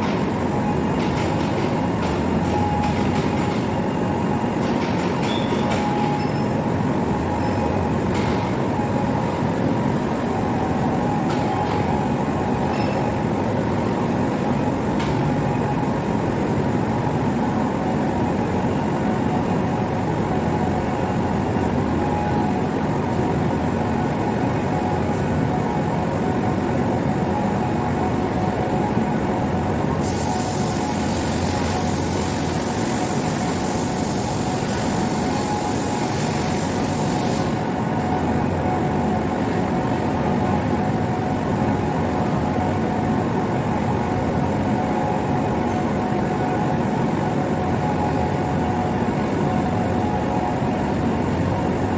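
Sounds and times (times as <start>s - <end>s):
industrial machinery hum: 0.0s - 51.9s
high hiss: 30.0s - 37.7s.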